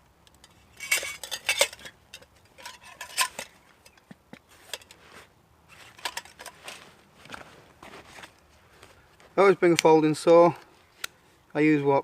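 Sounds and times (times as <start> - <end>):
steel utensils clinking together: 0.8 - 4.0.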